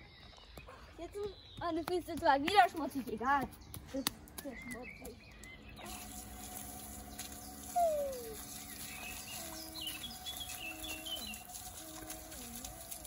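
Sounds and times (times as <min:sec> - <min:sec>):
birds calling: 0:00.0 - 0:13.0
tap water splashing on paving: 0:01.2 - 0:13.0
high bird chirps: 0:04.4 - 0:11.8.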